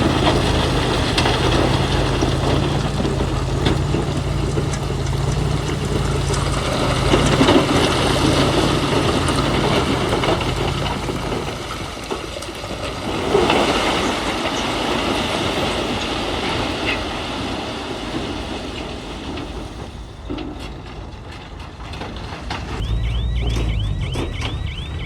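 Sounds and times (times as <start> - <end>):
diesel engine rumble: 0.0 - 13.1, 22.5 - 25.0
crawler tracks clanking over rock: 0.0 - 15.1
high squeal: 22.8 - 25.0.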